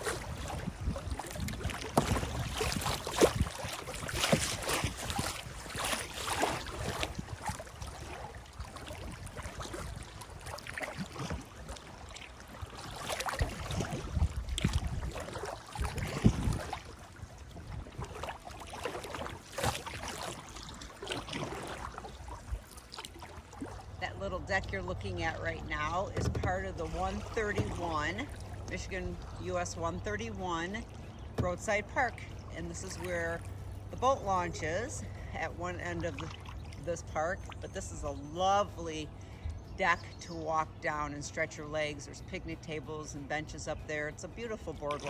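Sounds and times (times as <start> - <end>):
wind rumble on microphone: 0.0 - 22.8
kayak paddle swishing through water: 0.0 - 45.0.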